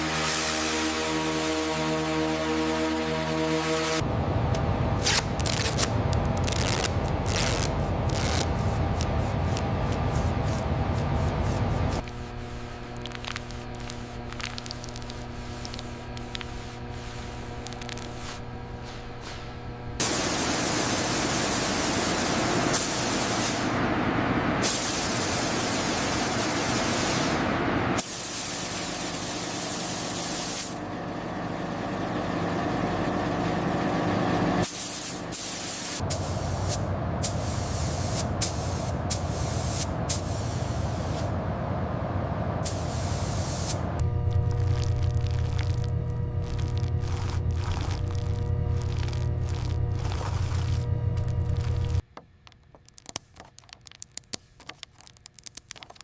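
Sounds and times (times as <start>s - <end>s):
mechanical rumble: 4.0s - 21.5s, 36.0s - 43.1s, 43.8s - 56.0s
high-pressure spray hissing: 20.0s - 23.6s.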